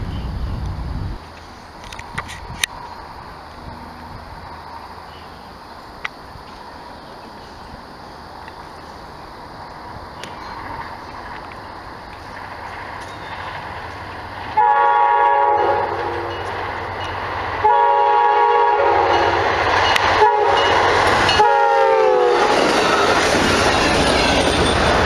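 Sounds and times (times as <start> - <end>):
passing train rumble: 0.0 - 25.0
locomotive air horn: 14.5 - 16.4, 17.6 - 19.4, 20.2 - 22.6.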